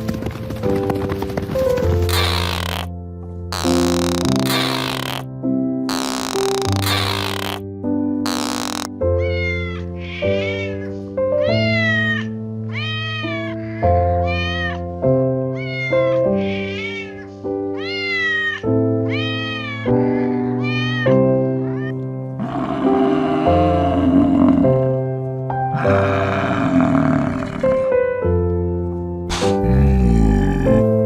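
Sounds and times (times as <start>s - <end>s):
background music with held notes: 0.0s - 31.0s
animal high cries: 2.1s - 2.9s, 3.6s - 5.2s, 5.9s - 7.6s, 8.3s - 14.8s, 17.8s - 23.6s.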